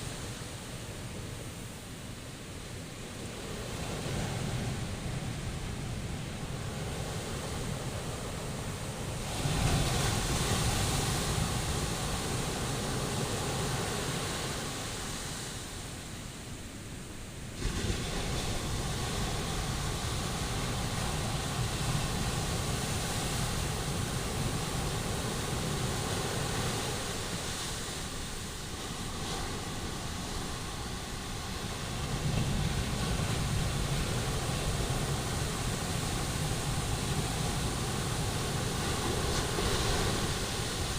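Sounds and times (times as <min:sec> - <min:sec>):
waves breaking on beach: 0:00.0 - 0:40.9
wind on microphone: 0:17.6 - 0:40.9.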